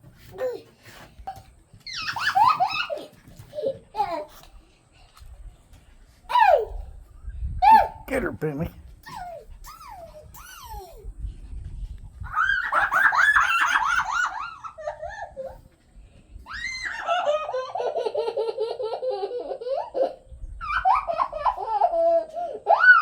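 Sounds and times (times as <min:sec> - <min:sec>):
girl laughing: 0:12.4 - 0:15.6, 0:16.8 - 0:23.0.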